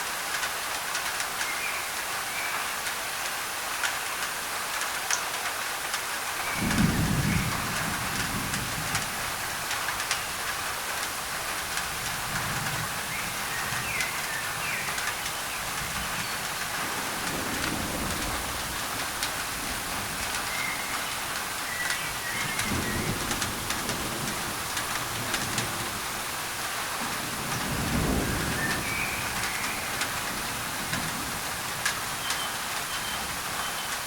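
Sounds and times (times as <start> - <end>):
rain on a tin roof: 0.0 - 34.0
thunder rumbling: 6.4 - 32.4
faint bird chirps: 32.2 - 34.0.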